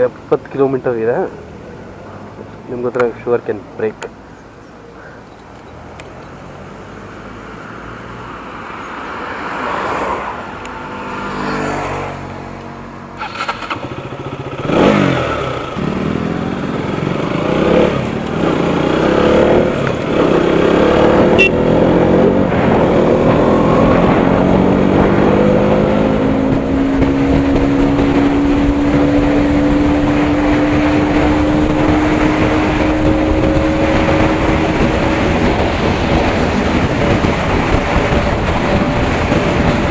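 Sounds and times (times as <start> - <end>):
motorcycle engine accelerating: 10.6 - 39.9
wind noise: 16.9 - 39.9.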